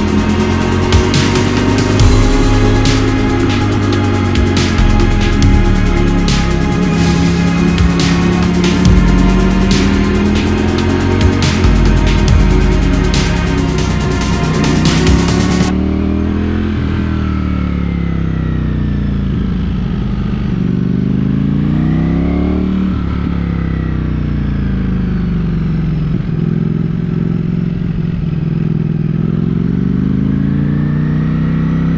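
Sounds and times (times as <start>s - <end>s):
motorcycle engine accelerating: 0.0s - 31.9s.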